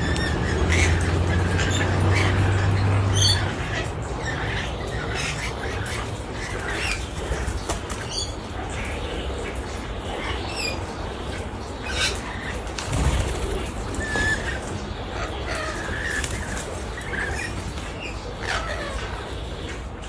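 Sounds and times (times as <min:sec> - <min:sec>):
birds squawking and chirping: 0:00.0 - 0:20.0
wings flapping: 0:12.6 - 0:14.6, 0:15.5 - 0:18.0.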